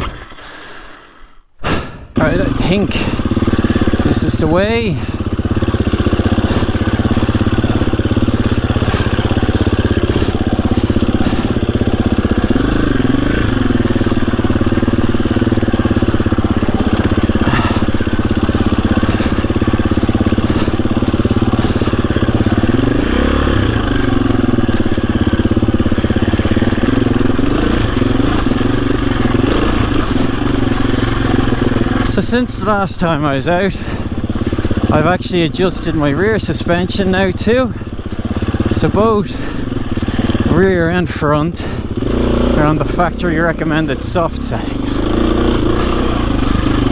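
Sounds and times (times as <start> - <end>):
motorcycle engine revving under load: 2.1 - 46.9.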